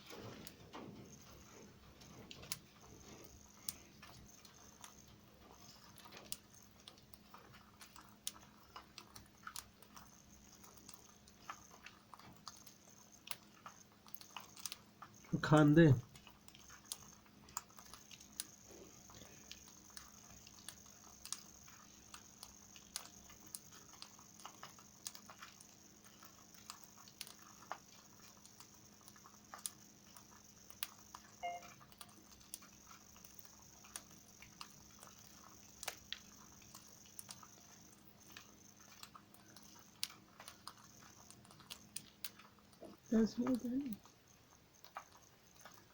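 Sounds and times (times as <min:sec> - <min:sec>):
parrots crunching food: 0:00.0 - 0:45.9
faint chirp: 0:31.4 - 0:31.8.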